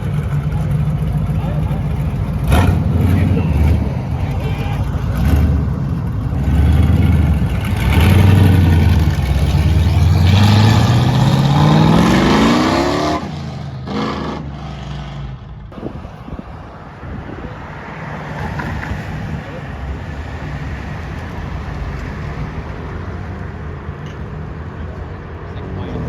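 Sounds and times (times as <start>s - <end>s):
car accelerating hard: 1.9s - 4.2s, 5.0s - 15.1s.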